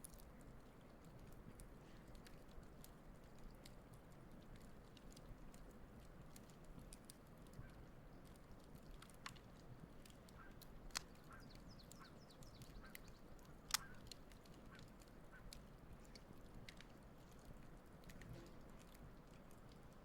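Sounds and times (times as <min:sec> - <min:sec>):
campfire crackling: 0:00.0 - 0:20.0
geese honking faintly: 0:13.8 - 0:15.5.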